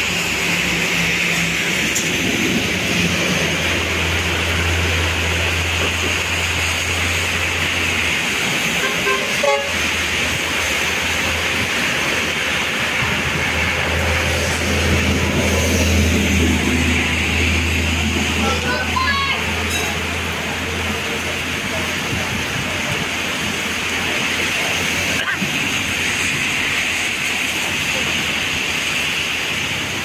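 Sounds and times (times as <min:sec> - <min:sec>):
heavy rain pouring: 0:00.0 - 0:30.0
vehicles driving on wet road: 0:00.0 - 0:30.0
horn toot: 0:08.8 - 0:09.8.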